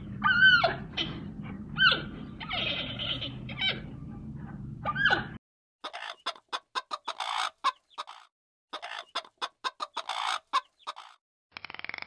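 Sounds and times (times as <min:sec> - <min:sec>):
bird clucking: 0:02.0 - 0:11.2.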